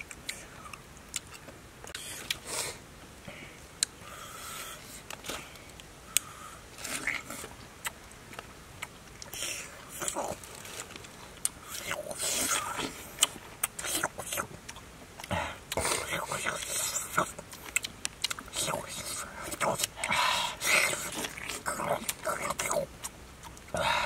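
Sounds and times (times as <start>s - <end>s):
person crunching pineapple: 0.0s - 2.5s, 4.6s - 24.0s.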